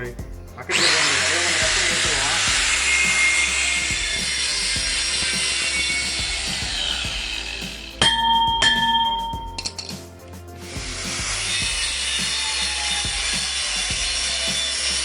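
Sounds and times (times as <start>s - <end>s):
air blower hissing: 0.0s - 15.0s
ringing metallic clangs: 8.0s - 10.0s.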